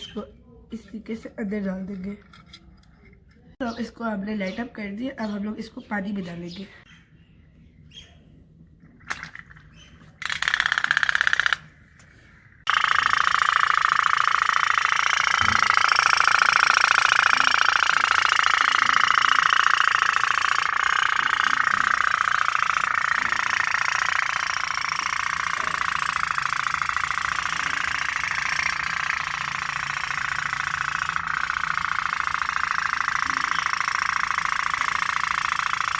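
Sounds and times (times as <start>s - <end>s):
toy steam boat engine buzzing rattle: 9.1s - 11.7s, 12.6s - 35.9s.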